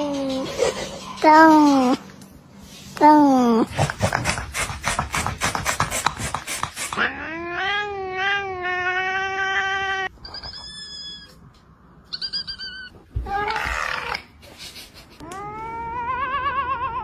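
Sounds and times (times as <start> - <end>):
high-pitched squeaky calls: 12.1 - 12.9
cats vocalizing: 12.1 - 17.0
cat yowling: 15.2 - 17.0.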